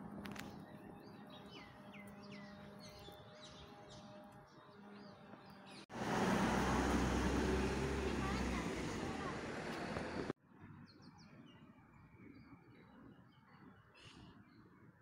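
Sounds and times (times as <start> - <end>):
small birds chirping: 0.3 - 5.9
loud street noise: 5.9 - 10.4.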